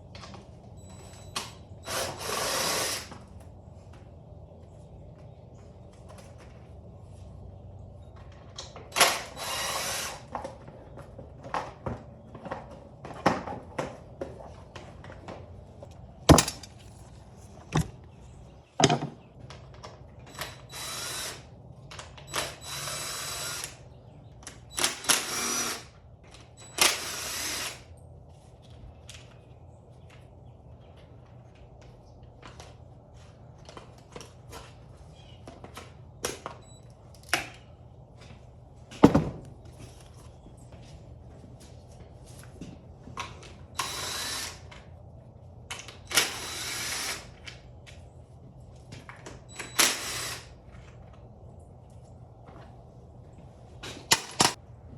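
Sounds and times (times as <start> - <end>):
power drill whirring: 1.8 - 3.1, 9.0 - 10.3, 20.3 - 21.5, 22.3 - 23.8, 24.8 - 26.0, 26.6 - 27.9, 43.8 - 44.8, 46.1 - 47.4, 49.5 - 50.5
tools clicking and knocking: 15.9 - 18.1, 18.8 - 19.2, 53.8 - 54.6.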